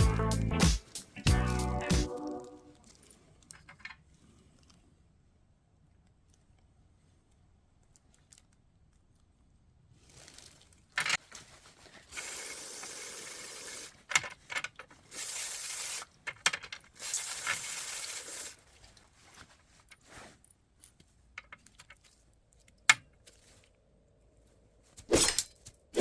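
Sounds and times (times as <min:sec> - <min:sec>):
hissing bursts: 0:15.1 - 0:16.1, 0:17.0 - 0:18.6.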